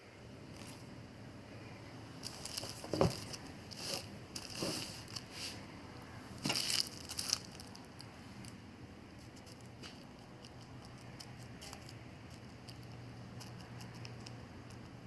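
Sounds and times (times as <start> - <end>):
scraping and crinkling: 2.2 - 5.7, 6.4 - 8.6.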